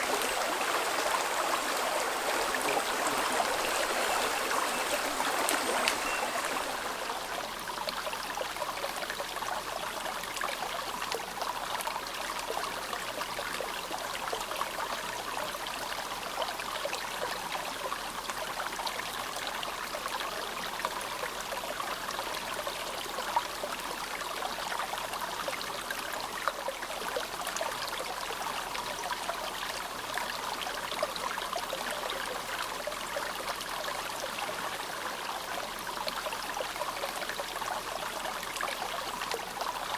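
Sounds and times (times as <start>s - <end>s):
river babbling: 0.0s - 39.9s.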